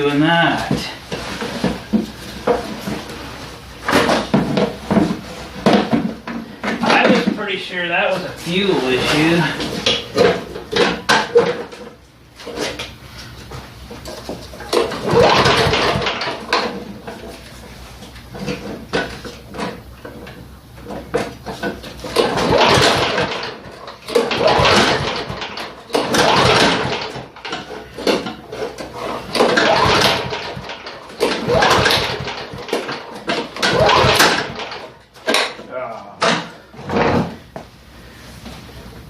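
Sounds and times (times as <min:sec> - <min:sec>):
mower engine failing to start: 0:14.0 - 0:17.3, 0:20.9 - 0:35.5.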